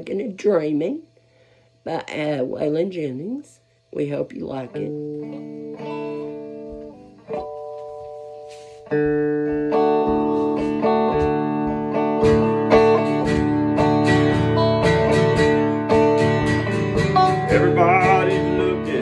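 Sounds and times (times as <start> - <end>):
guitar strumming: 4.2 - 19.0.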